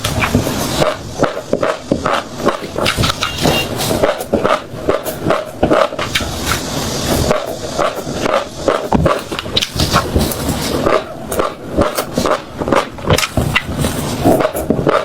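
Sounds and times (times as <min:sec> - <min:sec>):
chewing crunchy food: 0:00.0 - 0:15.0.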